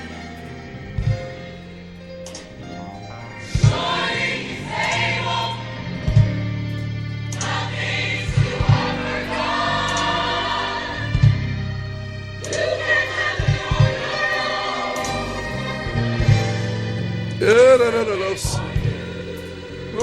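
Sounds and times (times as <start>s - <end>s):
gospel choir singing: 0.0s - 20.0s.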